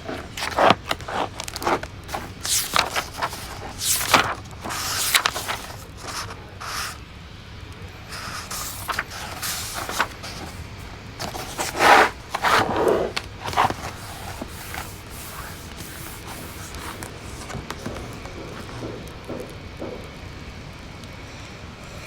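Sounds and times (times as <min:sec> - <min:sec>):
rustling scrape: 0:00.0 - 0:07.0, 0:08.1 - 0:18.9
steady hiss: 0:02.1 - 0:07.0, 0:07.9 - 0:18.0.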